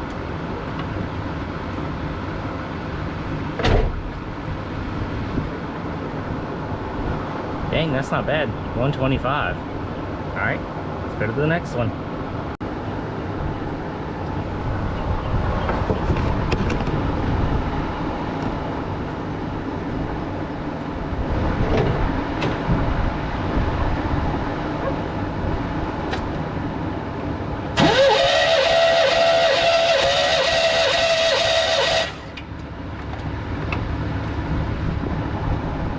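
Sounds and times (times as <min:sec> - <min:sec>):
starter cranking engine: 0:27.8 - 0:32.4.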